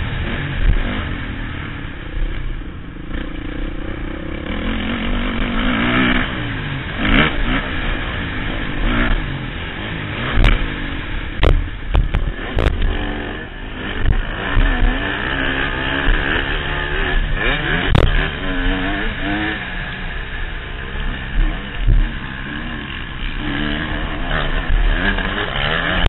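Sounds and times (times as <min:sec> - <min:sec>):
motorbike engine revving: 0:00.0 - 0:26.0
wind noise: 0:10.2 - 0:13.2
sharp knocks: 0:11.4 - 0:12.9.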